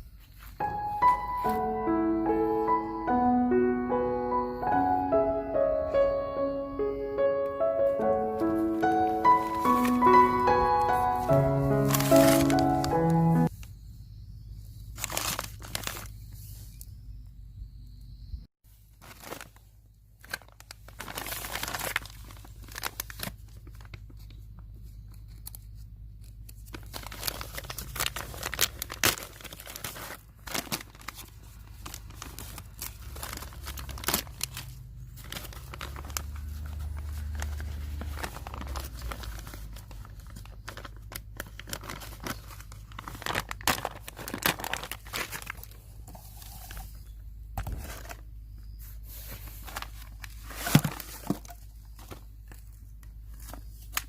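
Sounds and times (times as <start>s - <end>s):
crinkling and rustling handling noise: 7.9s - 13.7s, 14.9s - 17.0s, 18.7s - 54.0s.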